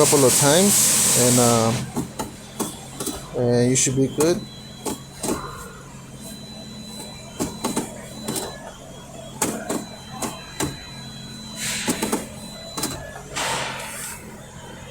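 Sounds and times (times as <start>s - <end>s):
sharp clicks and knocks: 4.2s - 5.4s, 7.4s - 8.6s, 9.4s - 10.8s, 11.8s - 13.1s.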